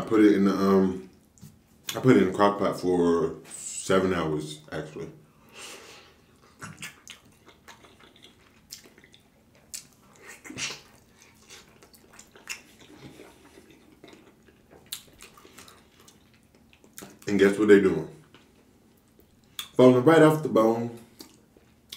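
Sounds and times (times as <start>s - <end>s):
wet chewing and lip smacking: 6.4s - 17.3s, 18.2s - 19.8s, 21.1s - 21.9s.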